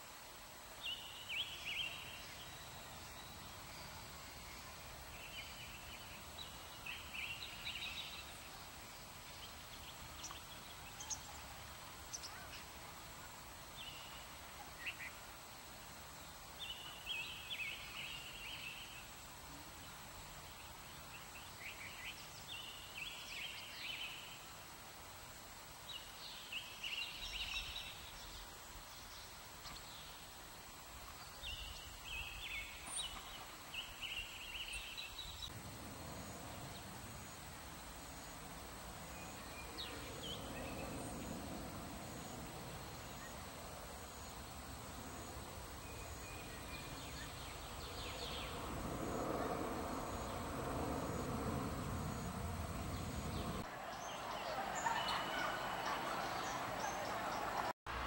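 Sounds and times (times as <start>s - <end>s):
low background noise: 0.0s - 58.0s
songbird chirping: 0.7s - 24.7s, 25.8s - 57.8s.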